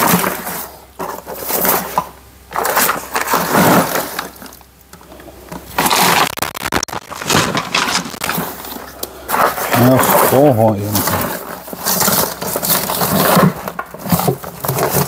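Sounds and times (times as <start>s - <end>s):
rummaging through objects: 0.0s - 15.0s.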